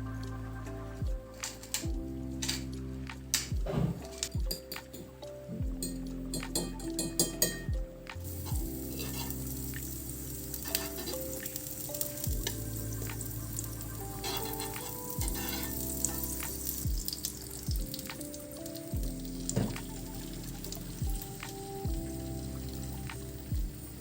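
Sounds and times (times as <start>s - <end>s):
soft background music: 0.0s - 24.0s
food sizzling in a frying pan: 8.2s - 24.0s.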